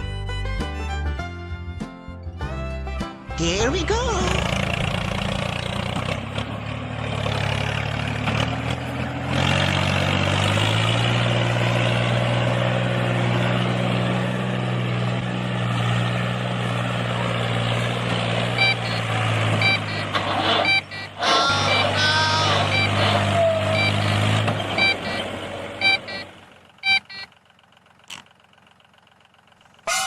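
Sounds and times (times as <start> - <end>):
heavy vehicle engine running: 0.0 - 30.0
short reversing beeps: 18.5 - 27.3.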